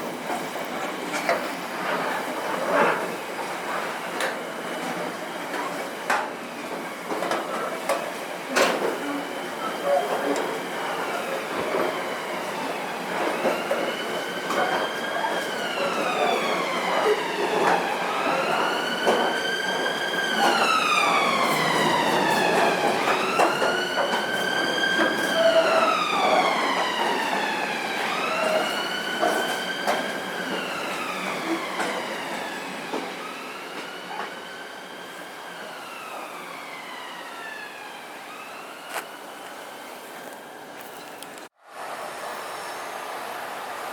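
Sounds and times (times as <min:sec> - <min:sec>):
emergency vehicle siren wailing: 0:11.0 - 0:39.9.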